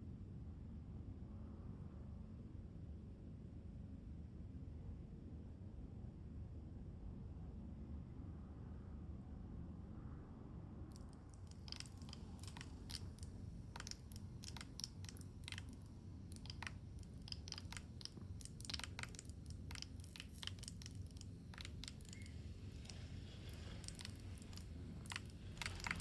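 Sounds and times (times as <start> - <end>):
candle flame crackling: 11.4 - 26.0.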